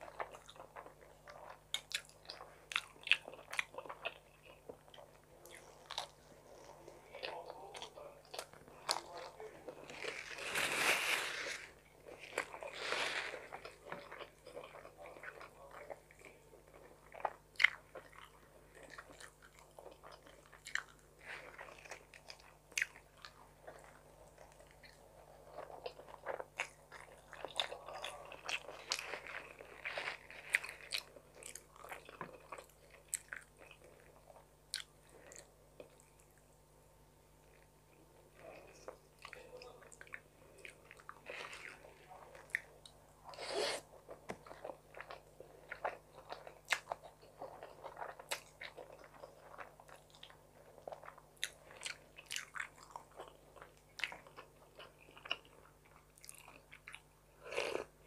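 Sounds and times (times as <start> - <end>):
chewing and mouth sounds: 0.0 - 10.3, 12.0 - 36.5, 38.4 - 58.0
paper napkin rustling: 10.0 - 11.7.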